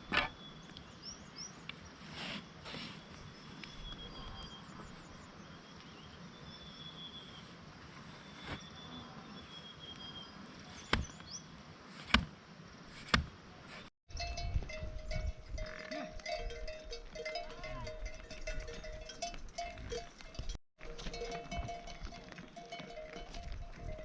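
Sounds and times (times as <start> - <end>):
livestock bells ringing: 14.1 - 24.0.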